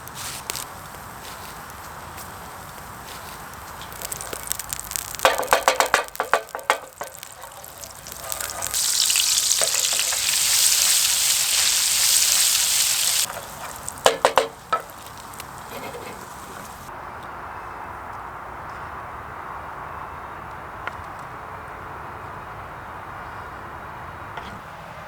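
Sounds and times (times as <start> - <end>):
food sizzling in pan: 0.0 - 16.9.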